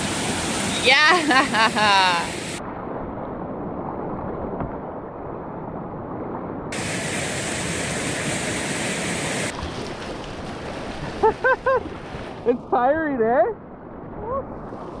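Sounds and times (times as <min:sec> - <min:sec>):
rushing whitewater: 0:00.0 - 0:02.6, 0:06.7 - 0:13.2
person calling out: 0:00.8 - 0:02.4.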